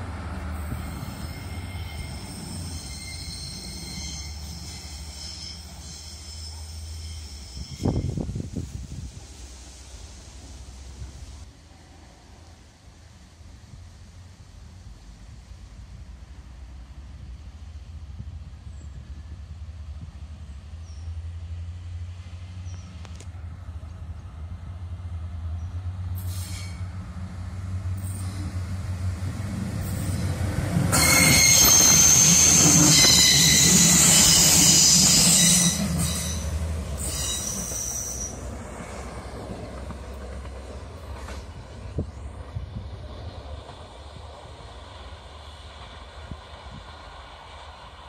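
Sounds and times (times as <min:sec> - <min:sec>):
train engine rumble: 0:00.0 - 0:48.0
wheel squeal on rails: 0:00.6 - 0:08.3, 0:26.2 - 0:26.9, 0:29.8 - 0:38.6.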